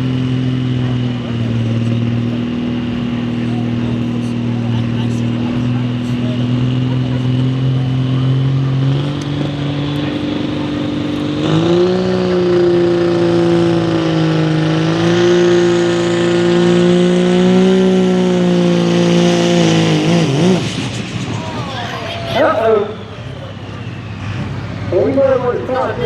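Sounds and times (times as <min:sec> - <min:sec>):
diesel pickup engine at full throttle: 0:00.0 - 0:26.0
high whistle climbing: 0:21.4 - 0:24.8.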